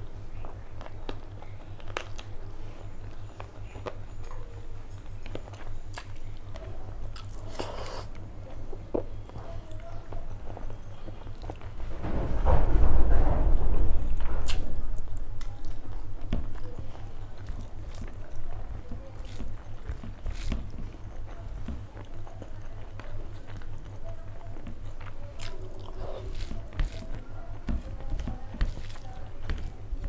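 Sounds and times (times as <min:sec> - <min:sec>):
close chewing with wet mouth clicks: 0:05.1 - 0:08.3, 0:14.4 - 0:29.8
fingers squelching rice into gravy: 0:14.4 - 0:30.0.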